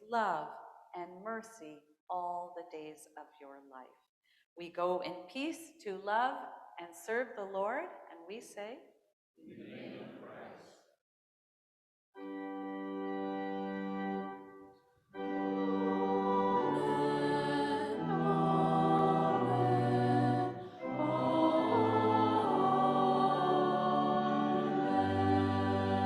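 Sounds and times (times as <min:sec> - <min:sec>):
organ playing chords: 0:12.2 - 0:26.0.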